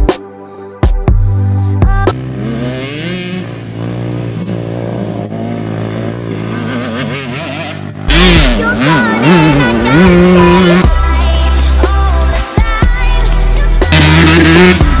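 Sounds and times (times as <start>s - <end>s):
dirt bike engine revving: 2.1s - 11.7s, 13.2s - 15.0s.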